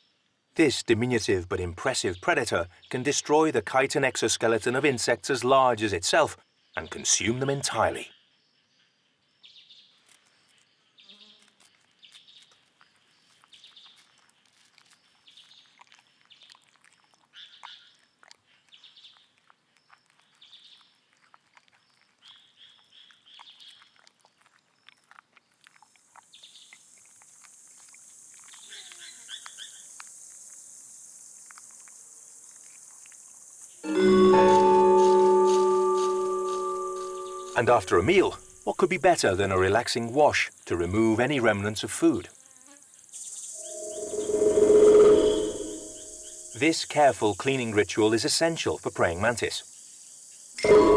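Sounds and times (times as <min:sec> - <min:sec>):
high insect buzz: 0:10.5 - 0:11.9, 0:28.2 - 0:38.8, 0:42.3 - 0:46.8.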